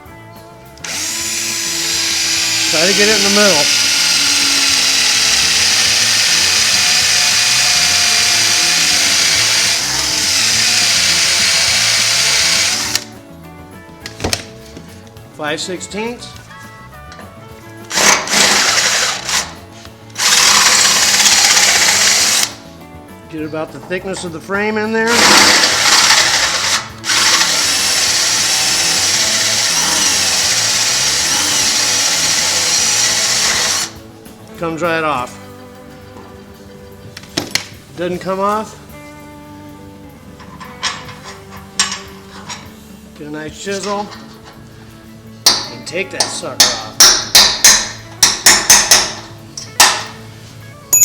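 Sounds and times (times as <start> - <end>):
drill click: 0.8 - 13.1, 17.9 - 19.6, 20.2 - 22.6, 25.1 - 34.0
electric drill boring into steel: 0.8 - 13.1, 17.9 - 19.6, 20.2 - 22.6, 25.1 - 34.0.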